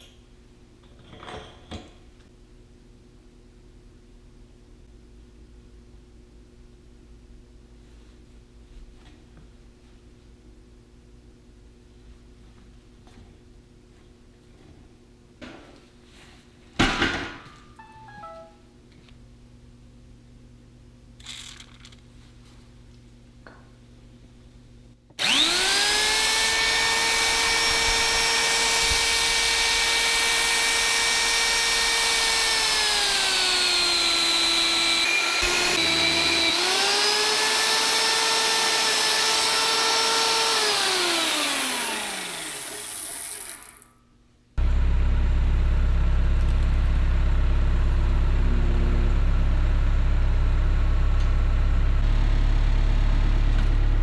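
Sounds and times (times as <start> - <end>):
motor whining: 25.2 - 43.8
engine droning: 44.6 - 54.0.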